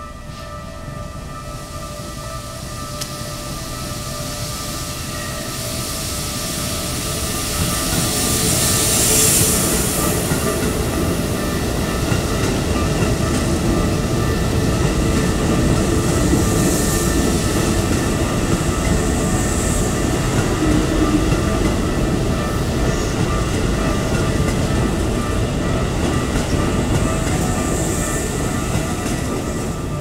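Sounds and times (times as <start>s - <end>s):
electric train wheels rumbling on rails: 0.0s - 30.0s.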